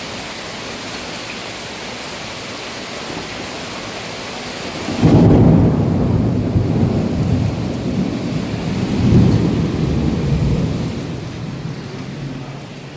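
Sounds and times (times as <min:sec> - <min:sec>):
rain: 0:00.0 - 0:12.9
thunder rumbling: 0:04.7 - 0:12.9.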